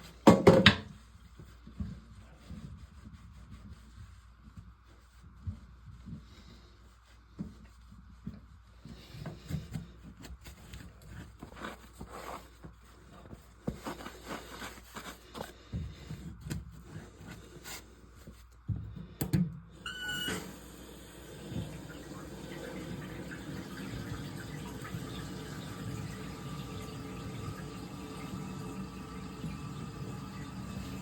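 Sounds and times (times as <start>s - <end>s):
short squeak: 19.9s - 20.5s.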